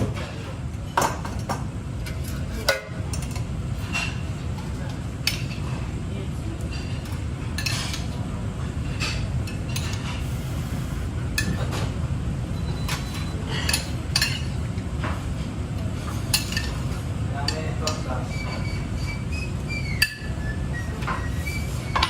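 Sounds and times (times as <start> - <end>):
metal utensils and dishes clinking: 2.0 - 4.2, 6.7 - 8.2, 12.8 - 14.6, 16.1 - 19.2.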